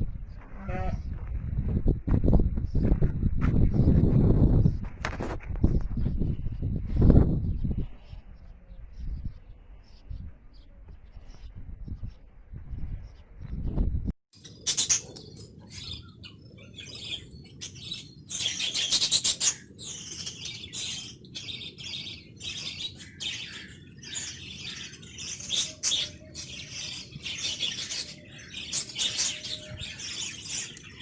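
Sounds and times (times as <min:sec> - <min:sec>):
birds chirping: 0:06.2 - 0:31.0.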